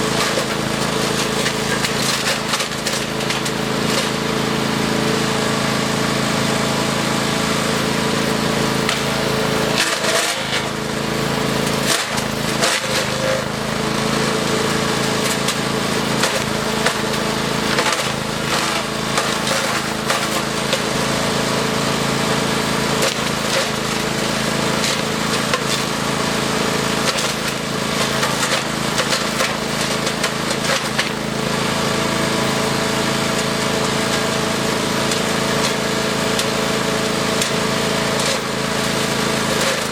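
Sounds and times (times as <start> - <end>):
wood chipper engine running: 0.0 - 39.9.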